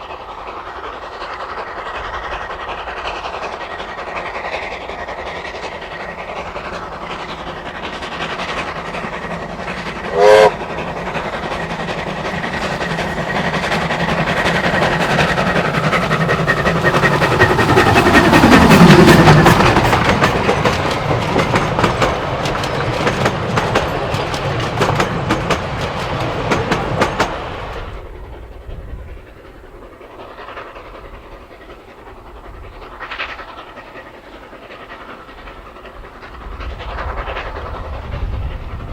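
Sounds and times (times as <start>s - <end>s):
steam train passing: 0.0s - 38.9s
wheels clacking over rail joints: 0.1s - 38.8s
train whistle toot: 10.1s - 10.7s.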